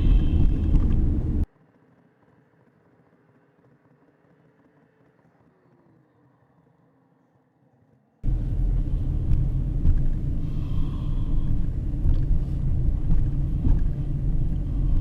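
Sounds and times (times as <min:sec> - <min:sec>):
vehicle driving rumble: 0:00.0 - 0:01.5, 0:08.2 - 0:15.0.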